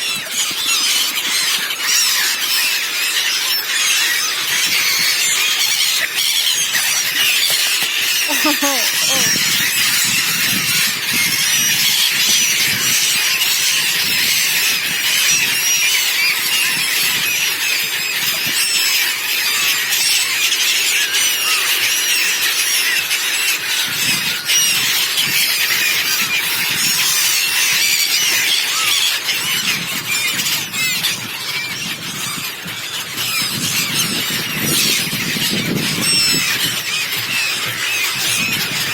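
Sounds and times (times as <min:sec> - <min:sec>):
flock of seabirds calling: 0:00.0 - 0:38.9.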